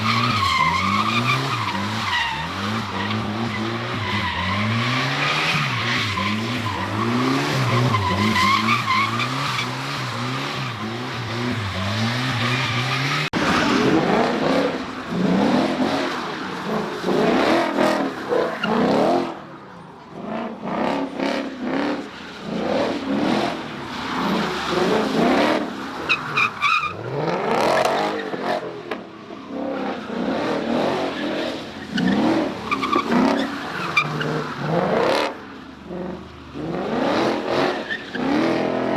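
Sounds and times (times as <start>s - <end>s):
tyres squealing: 0.0s - 13.7s
car engine revving: 0.0s - 19.4s.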